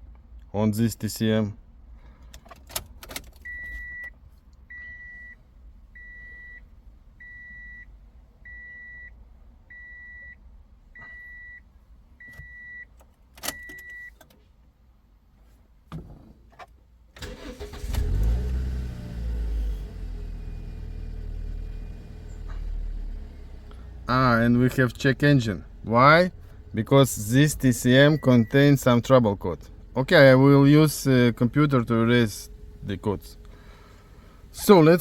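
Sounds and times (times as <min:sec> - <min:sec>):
car warning beeper: 0:03.4 - 0:05.4, 0:06.0 - 0:10.4, 0:11.0 - 0:14.2, 0:27.4 - 0:29.1
car engine starting and idling: 0:15.8 - 0:35.0.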